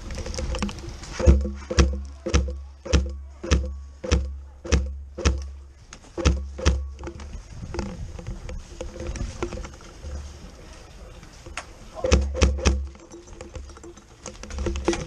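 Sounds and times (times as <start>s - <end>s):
airsoft gun shots: 1.2s - 5.5s.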